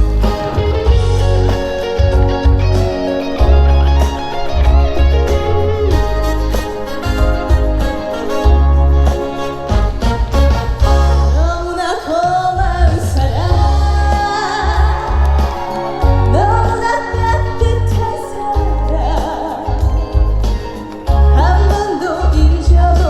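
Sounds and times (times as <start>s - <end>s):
backing track with pulsing bass beat: 0.0s - 11.6s, 12.6s - 23.0s
woman singing: 11.4s - 20.5s, 21.1s - 23.0s.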